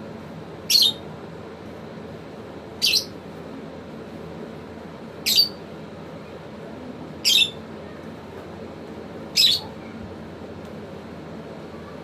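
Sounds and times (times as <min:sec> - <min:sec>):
lovebird high-pitched calls: 0:00.7 - 0:01.1, 0:02.8 - 0:03.2, 0:05.2 - 0:05.6, 0:07.2 - 0:07.6, 0:09.3 - 0:09.8.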